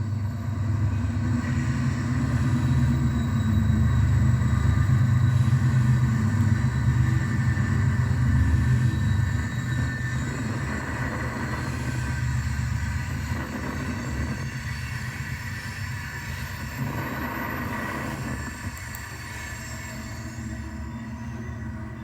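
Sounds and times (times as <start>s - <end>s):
thin motor whine: 0.0s - 22.0s.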